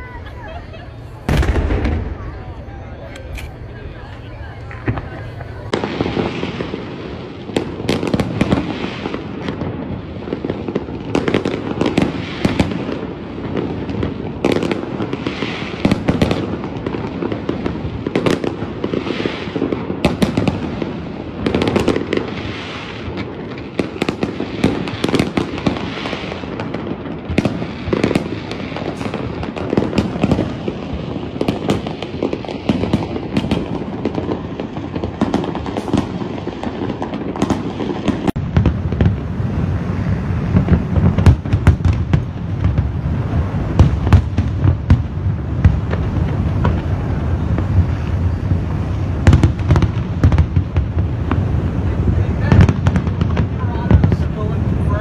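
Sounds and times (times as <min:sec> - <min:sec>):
continuous rumble: 0:00.0 - 0:11.0
fireworks bursting: 0:00.0 - 0:55.0
fireworks crackling: 0:00.0 - 0:55.0.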